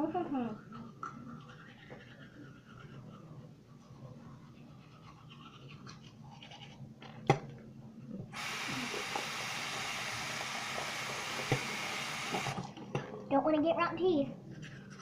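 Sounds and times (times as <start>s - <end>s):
toothbrush scrubbing: 0.6s - 6.8s
water running from tap: 8.4s - 12.6s.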